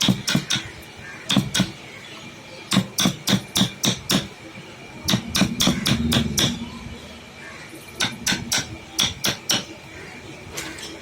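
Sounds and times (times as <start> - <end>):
hammer striking wood: 0.0 - 0.7, 1.3 - 1.8, 2.7 - 4.3, 5.1 - 6.6, 8.0 - 9.7.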